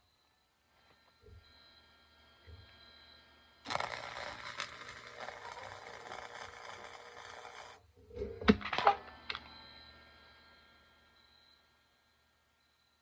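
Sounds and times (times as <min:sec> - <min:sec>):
welding arc crackling: 0:03.7 - 0:07.8.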